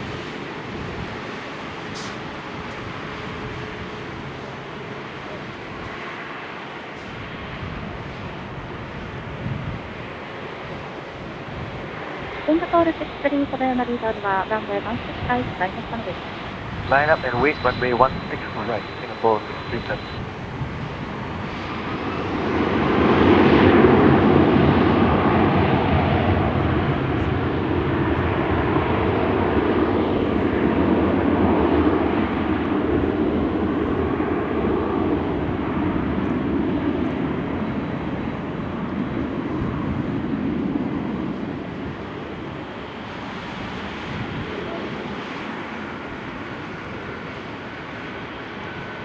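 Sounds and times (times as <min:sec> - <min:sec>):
jet engines running: 0:09.8 - 0:36.4.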